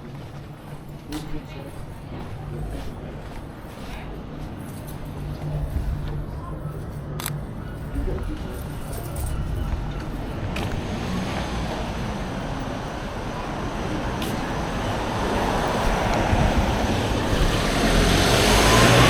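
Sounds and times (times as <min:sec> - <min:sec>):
vehicle approaching: 0:05.0 - 0:19.0.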